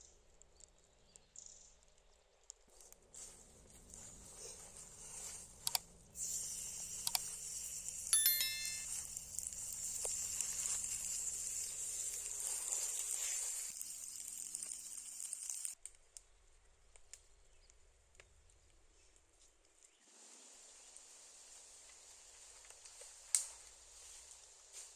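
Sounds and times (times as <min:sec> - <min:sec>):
meat sizzling on hot stone: 0:09.6 - 0:15.8.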